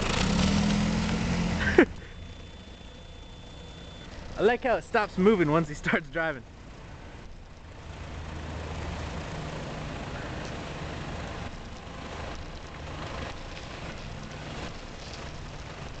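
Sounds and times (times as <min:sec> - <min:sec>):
car engine and exhaust humming: 0:00.0 - 0:16.0
road noise: 0:00.0 - 0:16.0.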